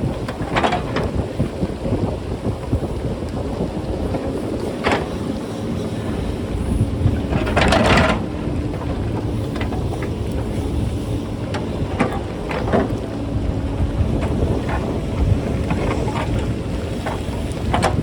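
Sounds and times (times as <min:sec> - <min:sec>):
wind buffeting microphone: 0:00.0 - 0:18.0
rocks and metal clattering: 0:07.1 - 0:10.5.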